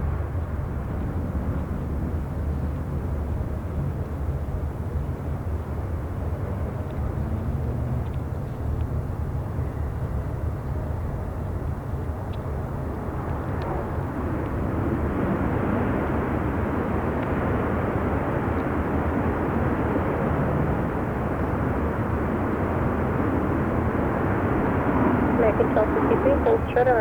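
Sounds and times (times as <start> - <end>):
jet engine rushing: 12.9 - 27.0.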